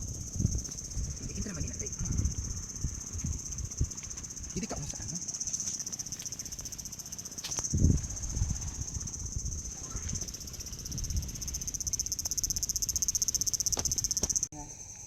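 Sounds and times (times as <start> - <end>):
insects trilling: 0.0 - 15.0
low rumbles: 6.6 - 14.5.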